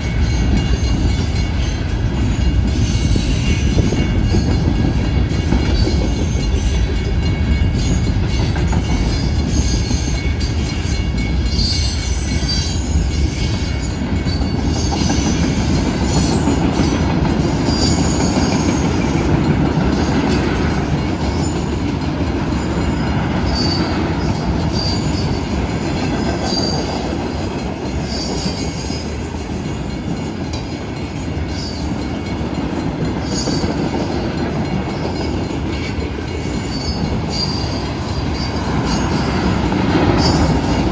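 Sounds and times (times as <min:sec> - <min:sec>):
train wheels rumbling on rail: 0:00.0 - 0:40.9
high wheel squeals: 0:07.8 - 0:16.9, 0:22.9 - 0:33.8, 0:35.2 - 0:40.9.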